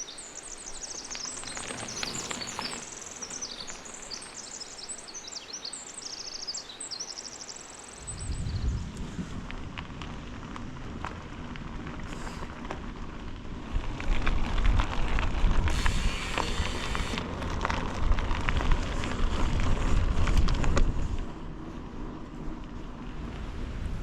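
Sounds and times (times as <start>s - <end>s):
wind buffeting microphone: 8.0s - 24.0s
crackling ticks: 8.9s - 21.4s
brief hiss: 15.7s - 17.2s.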